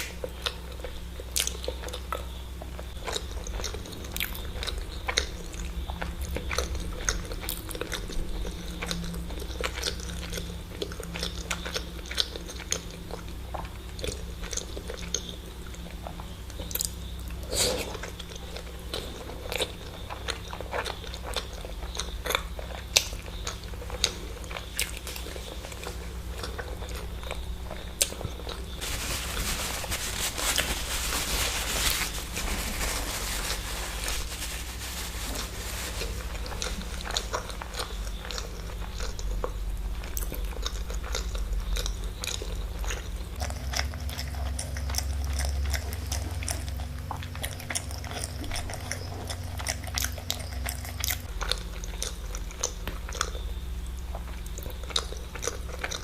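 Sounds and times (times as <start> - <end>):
chewing with wet mouth clicks: 0.0 - 28.8, 36.0 - 56.0
rustling noise: 28.8 - 37.9.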